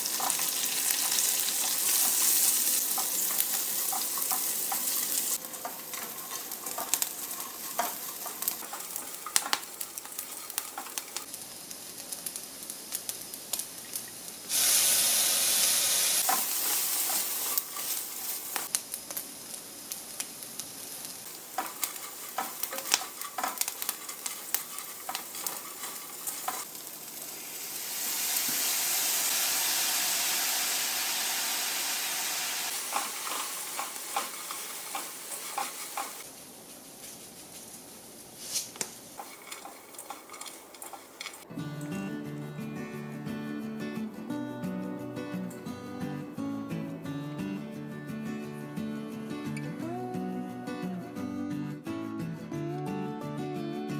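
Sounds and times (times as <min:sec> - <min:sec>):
spatula scraping a pan: 0:00.0 - 0:11.3, 0:16.2 - 0:18.7, 0:21.3 - 0:27.4, 0:32.6 - 0:36.3, 0:39.2 - 0:41.5
food sizzling in oil: 0:00.0 - 0:36.5, 0:39.1 - 0:46.4.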